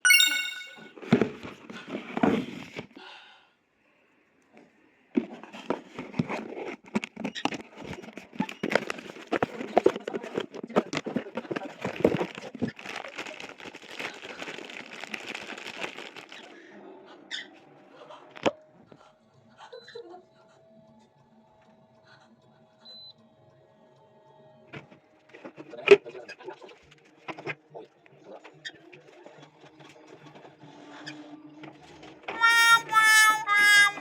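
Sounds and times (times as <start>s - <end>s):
plastic crinkling and rustling: 10.7s - 16.5s.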